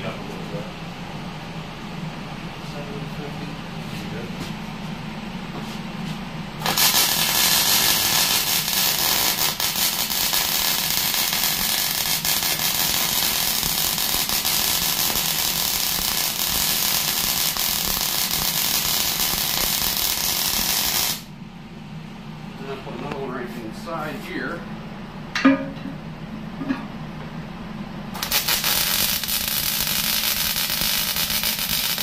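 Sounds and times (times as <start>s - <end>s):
arc welder crackling sizzle: 6.6s - 21.3s, 28.1s - 32.0s.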